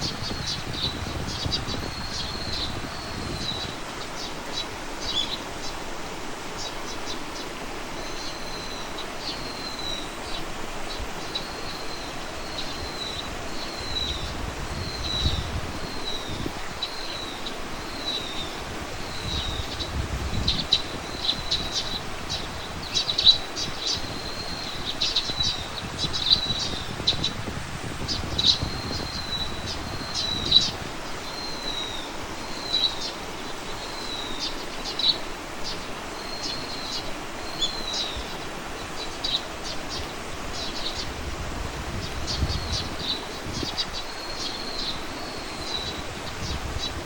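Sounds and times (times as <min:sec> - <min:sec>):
low wind rumble: 0:00.0 - 0:33.9, 0:34.8 - 0:47.0
small birds chirping: 0:00.0 - 0:47.0.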